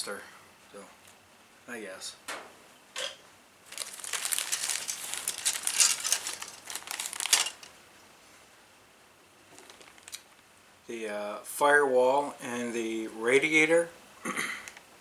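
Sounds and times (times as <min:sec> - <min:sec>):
plastic wrapping crinkling: 0:03.6 - 0:07.8, 0:09.5 - 0:10.4.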